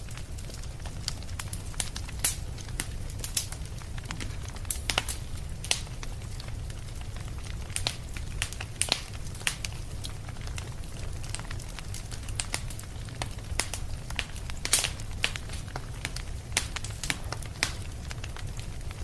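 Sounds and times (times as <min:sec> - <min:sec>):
low fire rumble: 0:00.0 - 0:19.0
wood fire crackling: 0:00.0 - 0:19.0
sharp pops and snaps: 0:01.8 - 0:06.2, 0:07.6 - 0:10.0, 0:11.3 - 0:18.5.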